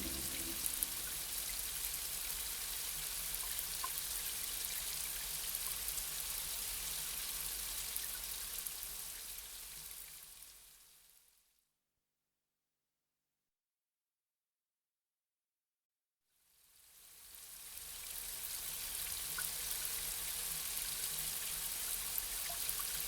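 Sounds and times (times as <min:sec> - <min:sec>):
soft musical tone: 0:00.0 - 0:01.3.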